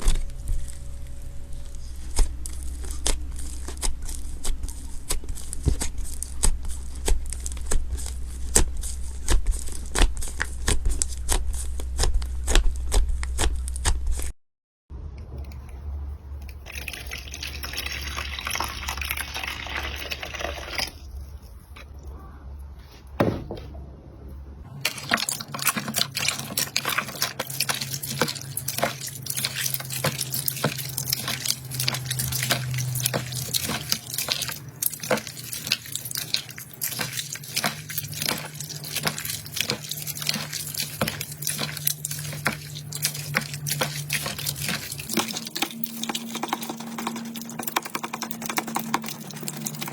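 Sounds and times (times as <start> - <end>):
slime squelching: 0.0 - 13.5, 24.7 - 49.9.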